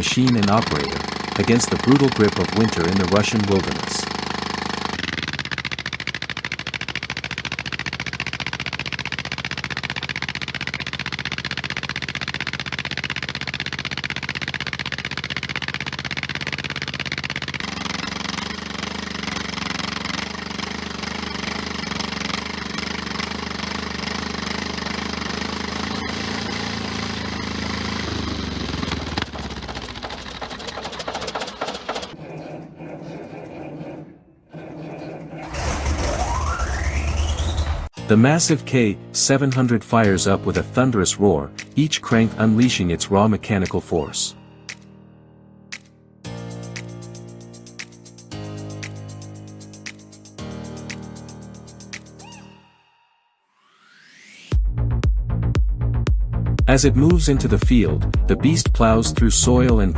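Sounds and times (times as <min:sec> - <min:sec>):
bulldozer diesel engine clattering: 0:00.0 - 0:32.2, 0:35.5 - 0:37.9.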